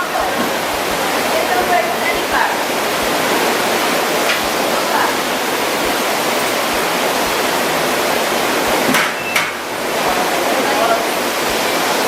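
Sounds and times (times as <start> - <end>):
loud rushing noise: 0.0 - 12.0.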